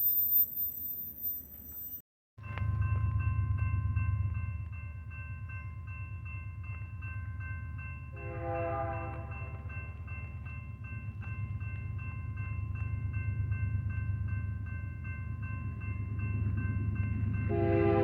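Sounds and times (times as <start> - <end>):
freight train rumble: 2.4 - 18.0
locomotive horn blast: 8.2 - 9.3, 17.5 - 18.0.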